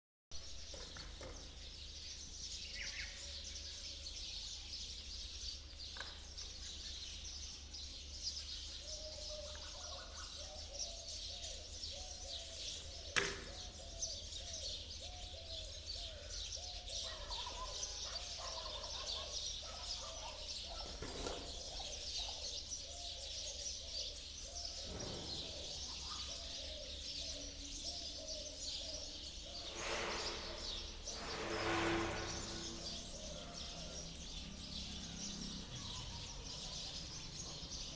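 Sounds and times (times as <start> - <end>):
high bird chirping: 9.0 - 37.9.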